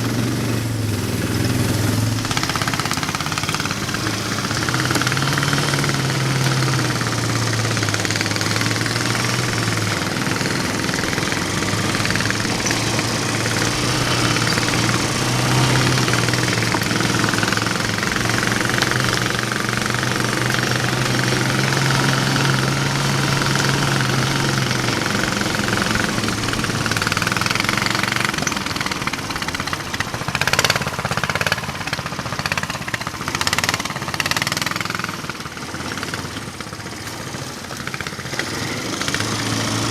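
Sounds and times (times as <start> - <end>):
single-cylinder engine running: 0.0 - 39.9.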